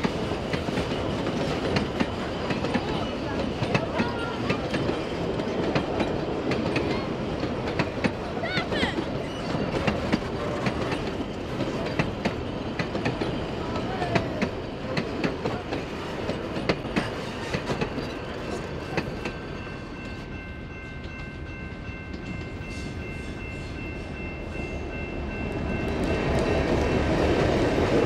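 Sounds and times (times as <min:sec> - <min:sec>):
train wheels clicking over rail joints: 0:00.0 - 0:20.2
train rumble: 0:00.0 - 0:28.0.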